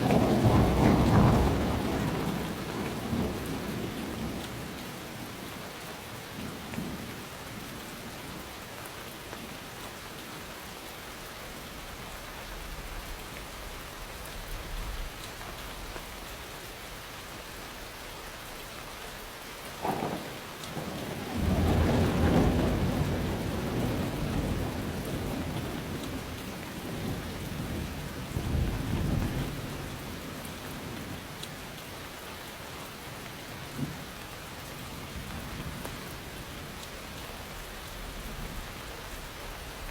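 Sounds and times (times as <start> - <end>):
thunderclap and rumble: 0.0 - 5.5, 19.8 - 31.7, 33.6 - 34.2
steady rainfall: 0.0 - 39.9.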